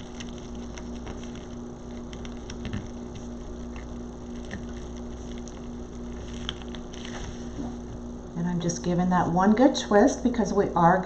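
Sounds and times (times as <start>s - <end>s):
wired ribbon crackling: 0.0s - 8.1s
steady low hum: 0.0s - 11.0s.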